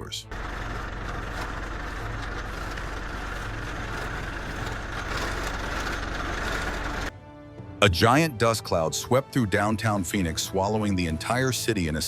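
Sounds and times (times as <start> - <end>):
constant rushing noise: 0.3 - 7.1
vehicle engine idling: 0.3 - 7.1.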